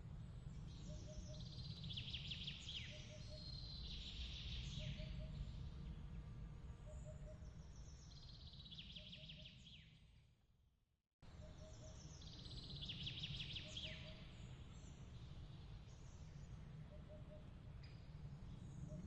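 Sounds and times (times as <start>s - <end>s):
low steady ambient rumble: 0.0s - 9.7s.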